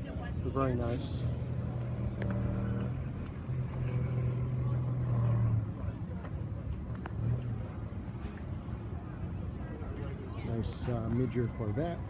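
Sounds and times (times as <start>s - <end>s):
people talking: 0.0s - 12.0s
car engine running at low revs: 0.3s - 8.8s.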